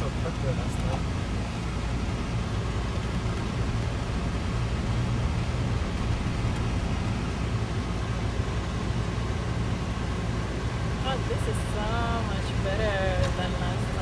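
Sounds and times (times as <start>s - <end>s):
road noise while driving: 0.0s - 14.0s
vehicle engine hum: 0.0s - 14.0s.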